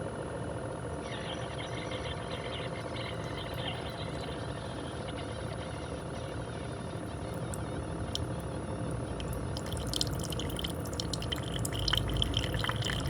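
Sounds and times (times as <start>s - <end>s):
coffee maker humming: 1.0s - 13.0s
coffee trickling into a cup: 9.1s - 13.0s.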